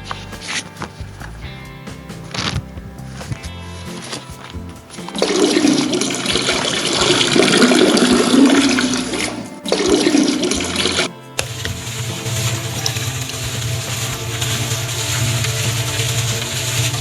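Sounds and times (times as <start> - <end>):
water rushing and gushing: 4.9 - 17.0.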